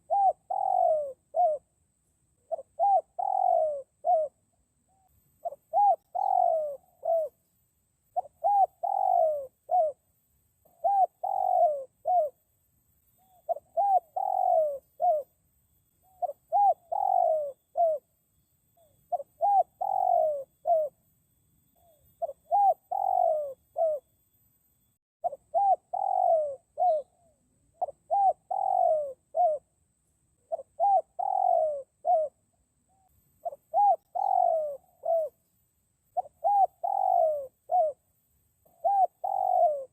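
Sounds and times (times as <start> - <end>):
dove cooing: 0.0 - 7.4, 8.1 - 12.4, 13.2 - 15.4, 16.0 - 18.1, 18.8 - 21.0, 21.7 - 24.1, 25.2 - 29.8, 30.4 - 35.5, 36.1 - 39.9.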